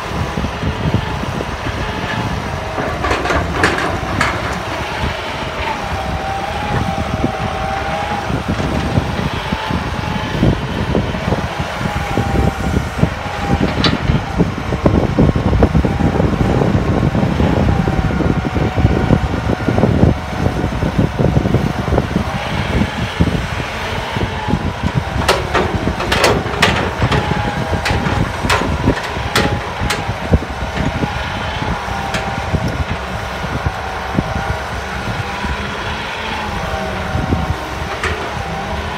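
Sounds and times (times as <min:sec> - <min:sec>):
excavator engine running: 0:00.0 - 0:38.9
sharp knocks: 0:25.2 - 0:31.2.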